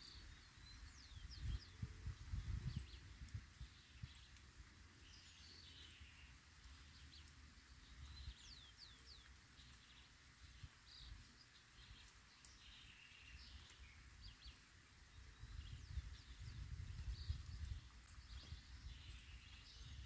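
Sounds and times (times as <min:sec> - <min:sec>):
small birds chirping: 0:00.0 - 0:20.0
wind rumble on microphone: 0:00.1 - 0:04.4, 0:15.1 - 0:20.0.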